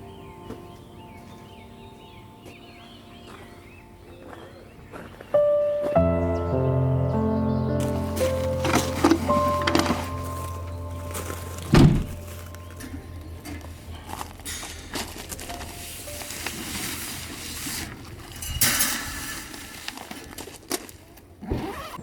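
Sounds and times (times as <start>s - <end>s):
background music: 0.0s - 17.9s
heavy thump: 7.8s - 15.6s
light knocks and handling noise: 7.8s - 19.0s.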